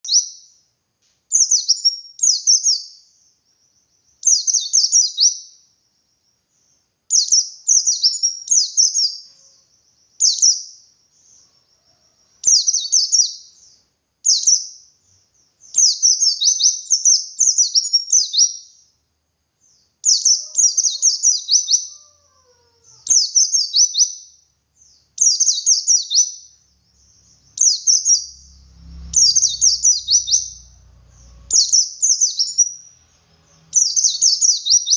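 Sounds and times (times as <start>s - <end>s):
bird singing high slurred notes: 6.6s - 19.0s, 19.6s - 34.9s
faint low rumble: 26.4s - 34.3s.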